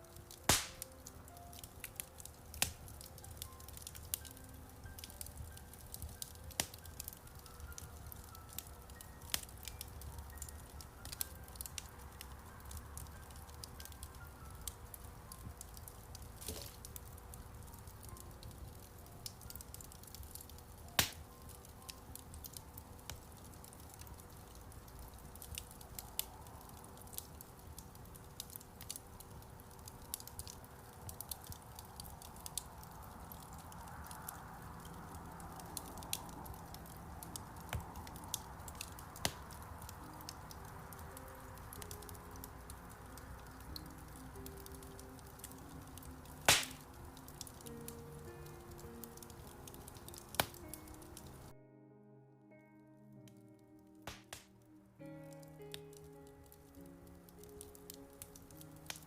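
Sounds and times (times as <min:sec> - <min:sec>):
wood fire crackling: 0:00.0 - 0:51.6, 0:53.2 - 0:59.0
sharp loud fire pop: 0:00.5 - 0:00.8, 0:46.5 - 0:46.8, 0:54.1 - 0:54.5.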